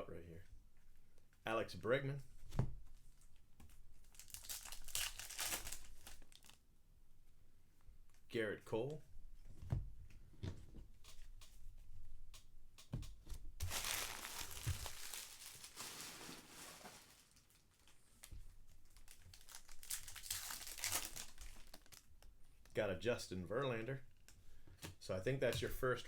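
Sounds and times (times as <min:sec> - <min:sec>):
wrappers crinkling and tearing: 0:04.0 - 0:06.6, 0:13.6 - 0:22.7
cards being handled ticking: 0:12.3 - 0:15.0.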